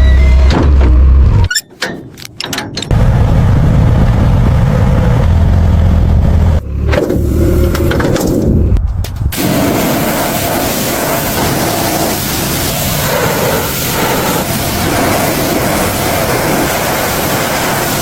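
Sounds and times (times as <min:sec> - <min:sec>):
motor low rumble: 0:02.8 - 0:18.0.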